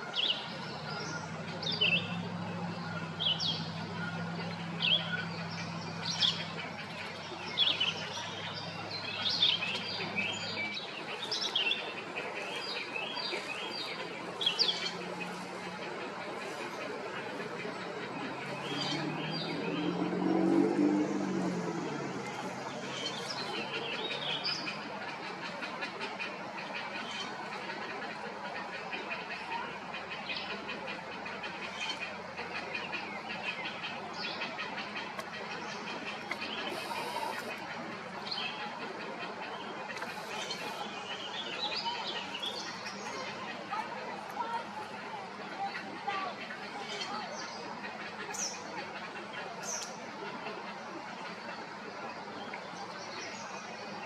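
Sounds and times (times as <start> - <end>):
birds chirping: 0.0 - 54.0
outdoor ambient hiss: 30.1 - 45.3
small birds chirping: 30.3 - 43.9.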